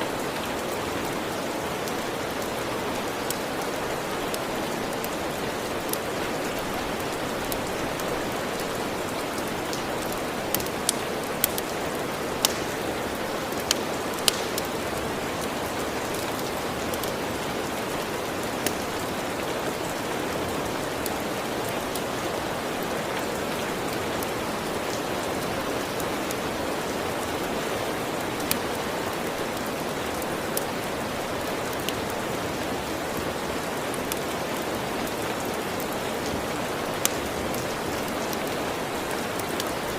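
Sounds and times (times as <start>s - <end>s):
steady rain: 0.0s - 39.9s
wood fire crackling and popping: 1.8s - 20.0s, 33.9s - 35.6s, 36.2s - 38.4s.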